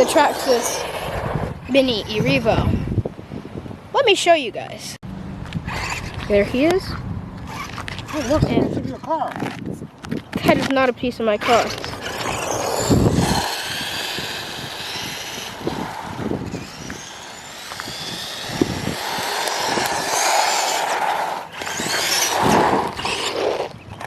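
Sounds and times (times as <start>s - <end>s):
toy truck electric motor whining: 0.0s - 2.4s, 5.6s - 6.8s, 7.5s - 9.1s, 11.4s - 23.7s.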